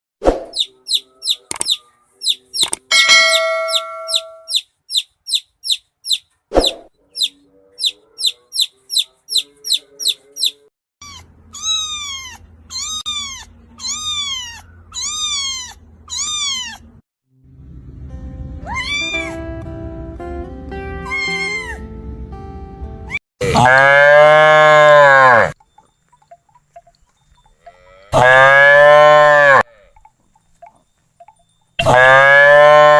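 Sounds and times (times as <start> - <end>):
baby chicks peeping: 0.6 - 6.3, 7.1 - 16.8
steady chime-like tone: 2.9 - 4.5, 30.0 - 31.8
kitten mewing: 11.0 - 16.9.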